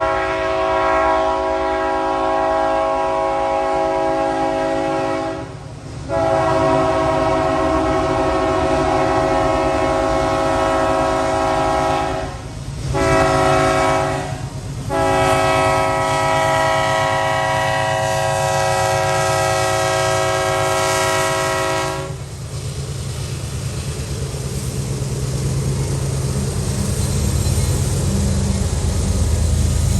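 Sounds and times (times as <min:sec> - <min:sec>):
locomotive air horn blasts: 0:00.0 - 0:22.3
train rumbling past: 0:00.0 - 0:29.9.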